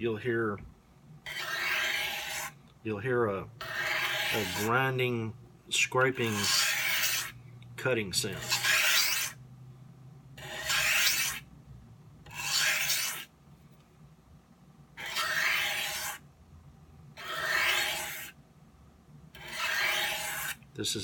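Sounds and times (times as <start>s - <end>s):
knife sharpening on stone: 1.3s - 2.5s, 3.6s - 4.8s, 6.2s - 7.3s, 8.4s - 9.4s, 10.4s - 11.4s, 12.3s - 13.2s, 15.0s - 16.2s, 17.2s - 18.3s, 19.4s - 20.6s.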